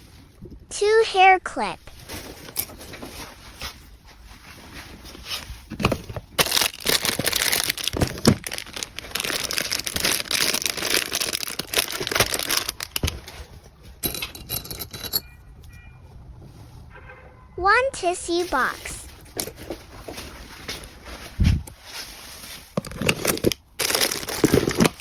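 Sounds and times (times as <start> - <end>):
packaging crinkling and rustling: 1.9 - 14.0, 18.4 - 25.0.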